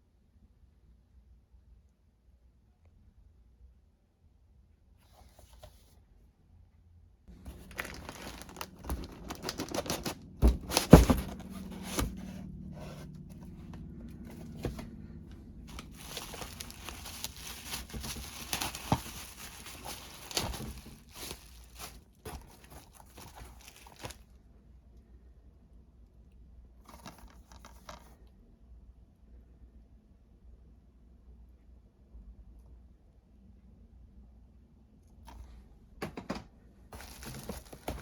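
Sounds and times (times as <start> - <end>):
packaging tearing and crinkling: 7.3 - 12.3, 15.7 - 24.2, 37.0 - 38.0.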